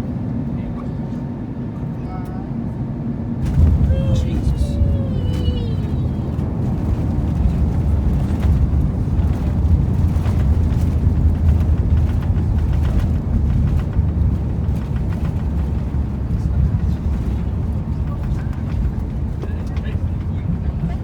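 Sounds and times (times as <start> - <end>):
airliner cabin engine rumble: 0.0 - 21.0.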